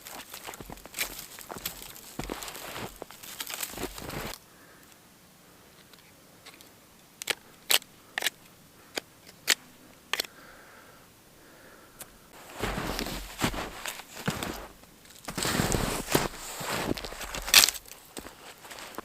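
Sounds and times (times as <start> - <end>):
crunching in snow: 0.0 - 4.4, 12.3 - 19.0
twigs snapping: 0.0 - 4.4, 13.3 - 19.0.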